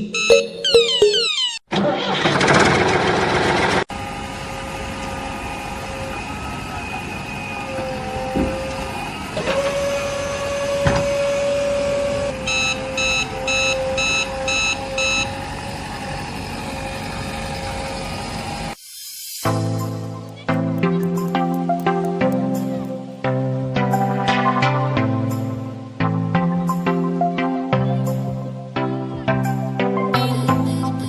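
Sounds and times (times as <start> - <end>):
reversing beeper: 0.0 - 1.6, 5.4 - 16.0
vehicle engine hum: 2.3 - 18.8.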